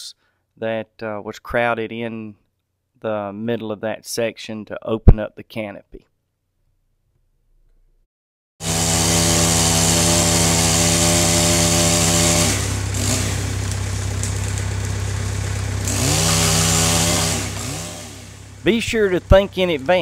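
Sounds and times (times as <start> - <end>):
chainsaw revving: 8.6 - 20.0.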